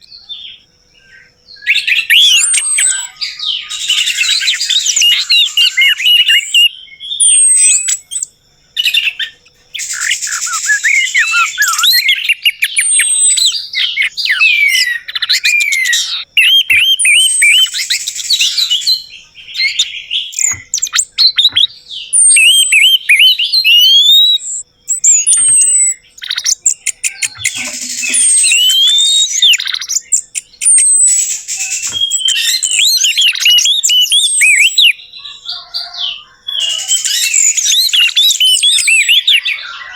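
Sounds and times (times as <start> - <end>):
thrush singing whistled song: 0.0 - 39.9.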